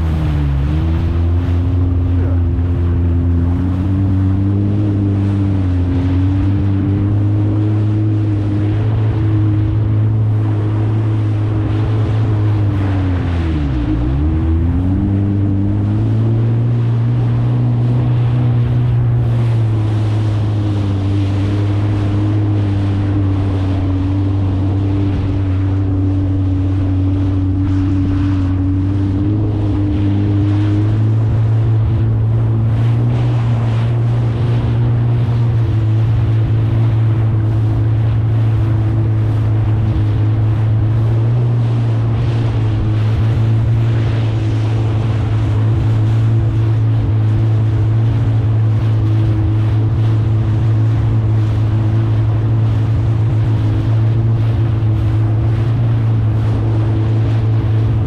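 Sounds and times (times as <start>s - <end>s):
jet ski engine running: 0.0s - 58.0s
water noise: 0.0s - 58.0s
wind on microphone: 0.0s - 58.0s.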